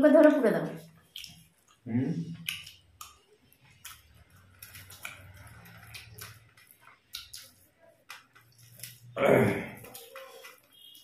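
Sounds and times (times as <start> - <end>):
chewing and mouth clicks: 0.2 - 11.0
fingers smacking food: 1.0 - 9.1.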